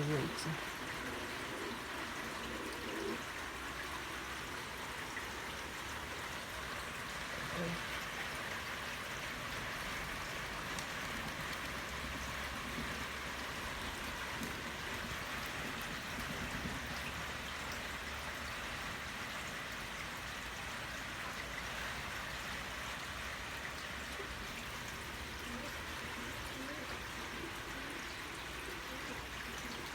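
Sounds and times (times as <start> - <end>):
light rain falling: 0.0 - 29.9
raindrop ticks: 9.4 - 18.0.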